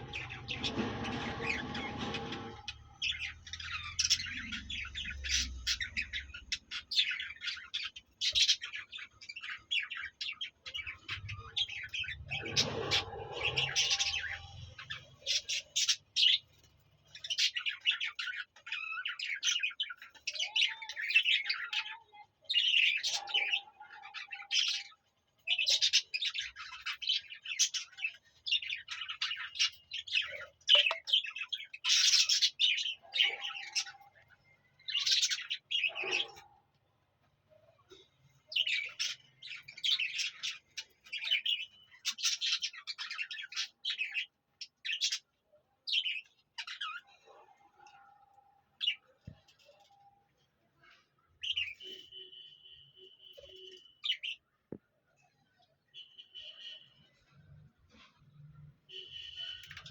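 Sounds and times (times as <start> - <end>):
budgerigars chattering and warbling: 0.0 - 16.5, 17.2 - 36.6, 38.5 - 45.3.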